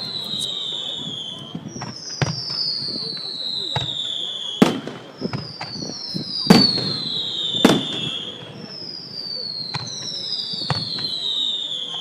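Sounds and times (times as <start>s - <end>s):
firework cracks: 0.0s - 12.0s
firework whistles: 0.0s - 12.0s
loud firework bangs: 0.0s - 12.0s.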